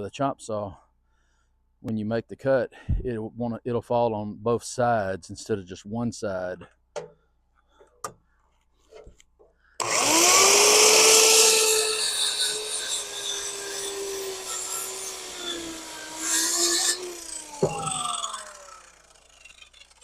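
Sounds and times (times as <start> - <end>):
circular saw cutting wood: 9.8 - 20.0.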